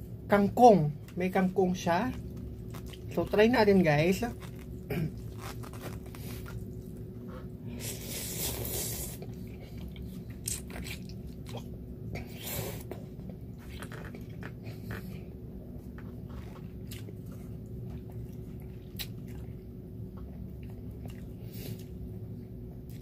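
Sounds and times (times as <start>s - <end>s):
person chewing: 2.2s - 3.3s, 4.3s - 22.0s
person slurping noodles: 7.8s - 9.3s.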